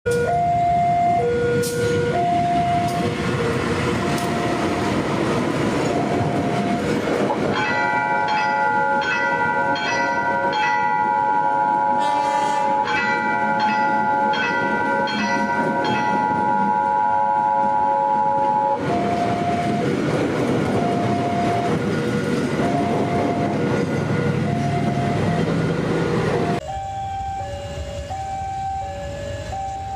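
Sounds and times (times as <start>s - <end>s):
train rumble and wheel noise: 0.1s - 29.9s
locomotive horn blast: 11.3s - 19.8s
two-note warning beep: 26.5s - 29.9s.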